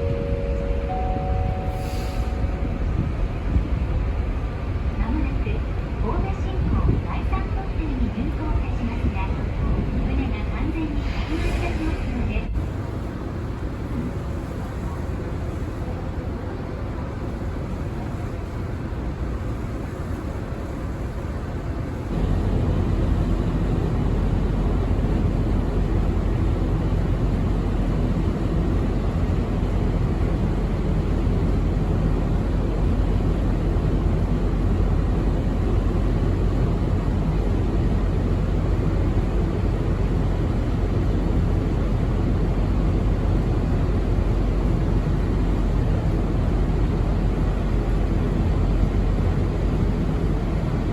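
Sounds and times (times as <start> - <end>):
ferry engines rumbling: 0.0 - 50.9.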